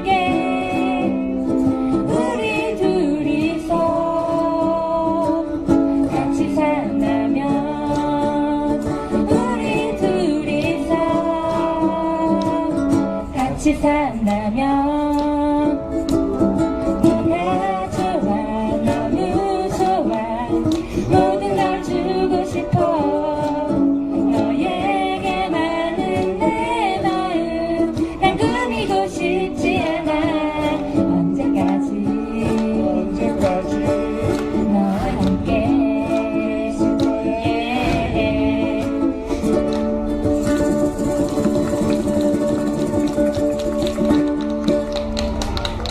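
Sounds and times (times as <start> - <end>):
ukulele ensemble playing: 0.0 - 45.9.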